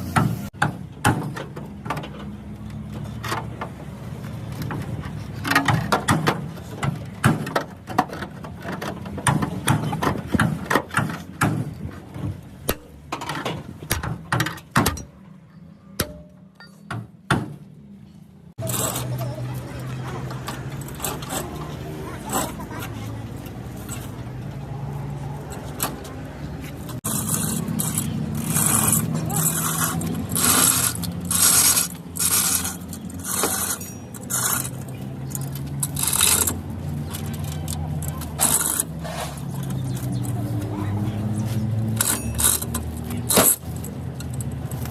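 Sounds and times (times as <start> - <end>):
rhythmic scraping strokes: 26.9 - 36.6.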